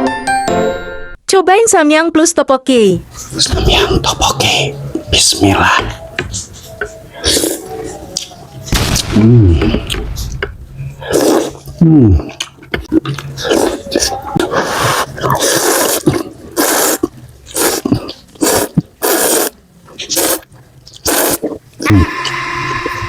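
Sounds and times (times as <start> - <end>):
chewing and mouth sounds: 5.8 - 23.0
loud noodle slurping: 11.0 - 11.7, 13.0 - 23.0.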